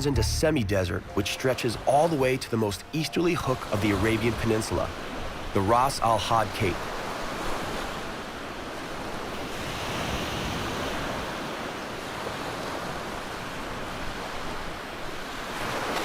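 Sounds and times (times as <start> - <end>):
ocean surf washing onto beach: 0.0 - 16.0.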